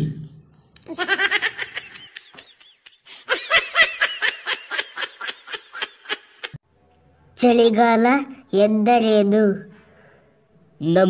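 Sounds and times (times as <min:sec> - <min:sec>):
person laughing: 0:00.8 - 0:06.6.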